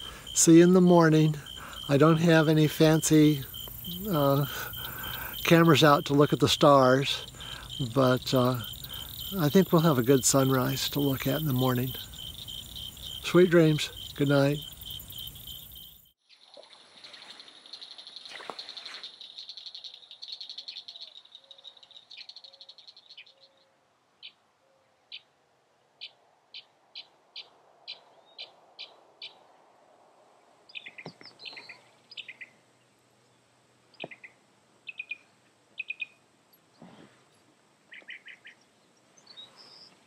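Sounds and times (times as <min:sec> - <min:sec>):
high insect trilling: 0:00.0 - 0:23.1
varied bird calls: 0:00.0 - 0:24.4, 0:34.0 - 0:36.2, 0:37.9 - 0:40.0
bird chirping: 0:01.2 - 0:24.4, 0:30.7 - 0:32.6, 0:33.9 - 0:36.2, 0:37.9 - 0:40.0.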